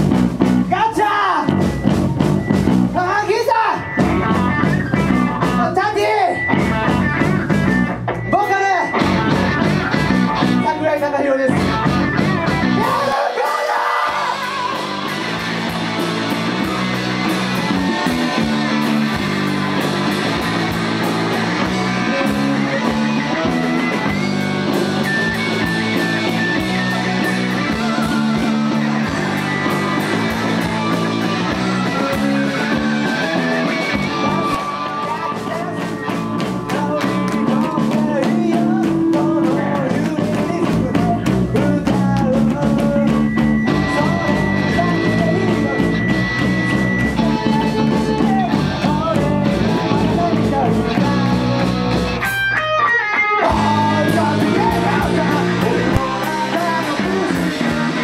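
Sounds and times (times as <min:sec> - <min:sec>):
live rock band playing: 0:00.0 - 0:58.0
person singing: 0:12.7 - 0:19.0, 0:19.8 - 0:52.3, 0:53.3 - 0:58.0.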